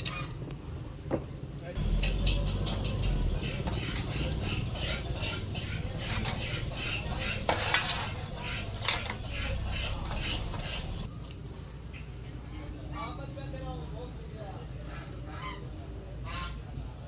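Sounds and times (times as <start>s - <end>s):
metal tools scraping and clinking: 1.8s - 11.1s.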